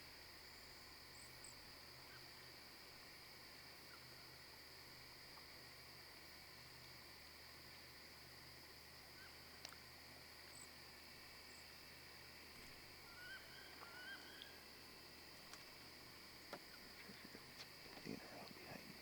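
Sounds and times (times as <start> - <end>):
high-pitched insect chorus: 0.0 - 19.0
faint bird calls: 9.1 - 9.6, 12.6 - 15.0.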